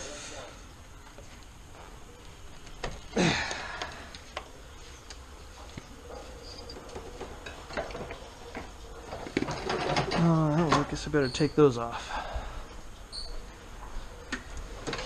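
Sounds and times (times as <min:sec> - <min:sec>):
tools clicking and knocking on metal: 0:06.7 - 0:11.0.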